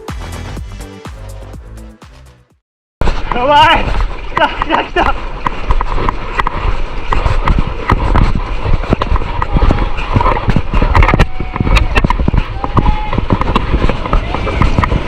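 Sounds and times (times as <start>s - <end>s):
wind and water rumble: 3.0s - 15.0s.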